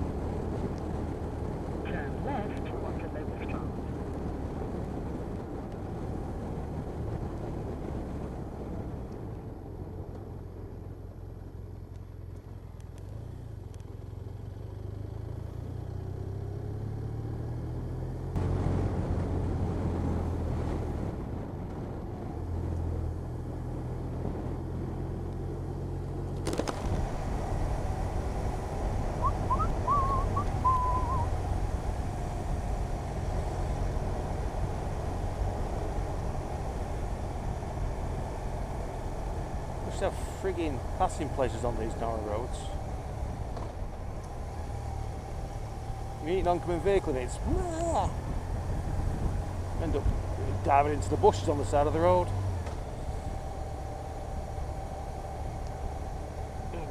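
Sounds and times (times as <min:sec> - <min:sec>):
wind rushing over microphone: 0:00.0 - 0:10.3, 0:18.4 - 0:25.1, 0:26.5 - 0:39.9, 0:41.7 - 0:51.4
motorcycle engine running: 0:00.0 - 0:56.9
short warbling whistle tone: 0:29.2 - 0:31.3.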